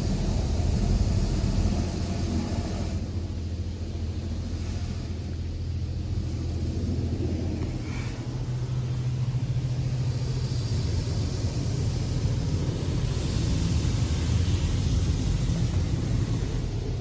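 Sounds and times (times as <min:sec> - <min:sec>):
car wash low hum: 0:00.0 - 0:17.0
water spray hissing on car: 0:00.0 - 0:17.0.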